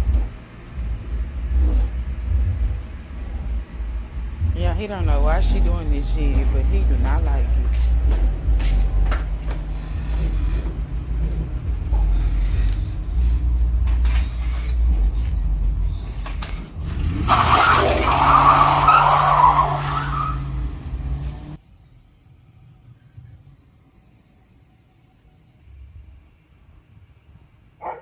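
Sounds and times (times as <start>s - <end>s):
car engine rumbling: 0.0s - 27.6s
tyres screeching: 7.5s - 21.5s.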